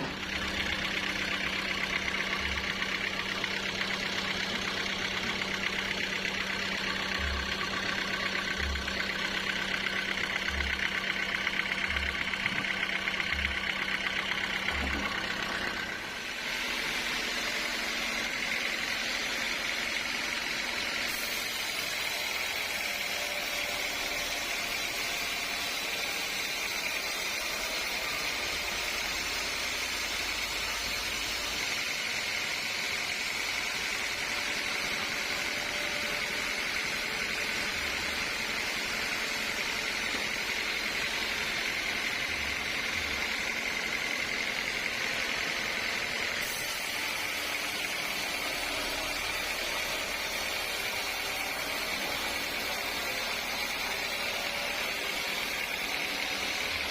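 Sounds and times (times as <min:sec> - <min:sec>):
sawmill saw high hiss: 0:15.1 - 0:56.9.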